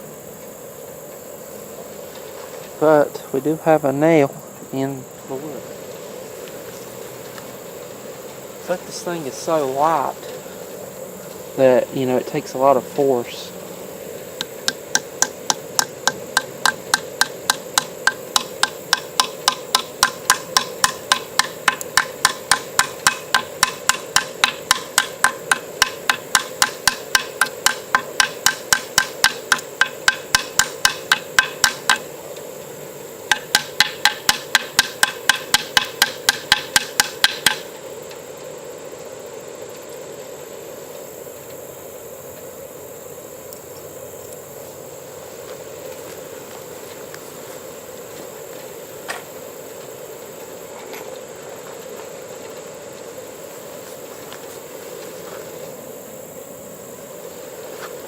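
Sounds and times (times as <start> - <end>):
hammer tapping nail into wood: 14.4 - 32.1, 33.3 - 37.7.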